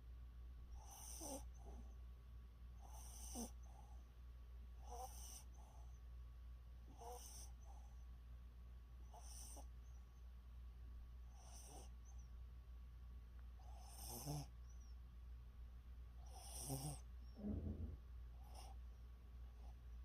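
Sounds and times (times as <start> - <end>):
dog snoring: 0.8 - 1.9, 2.8 - 4.0, 4.8 - 6.0, 6.9 - 7.9, 9.1 - 9.7, 11.3 - 12.2, 13.6 - 14.5, 16.2 - 18.8.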